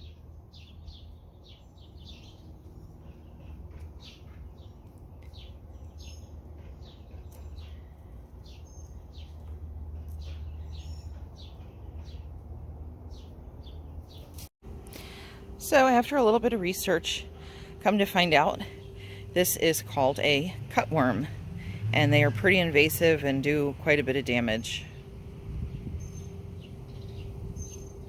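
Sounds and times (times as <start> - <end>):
small birds chirping: 0.0 - 28.0
steady low rumble: 14.6 - 28.0.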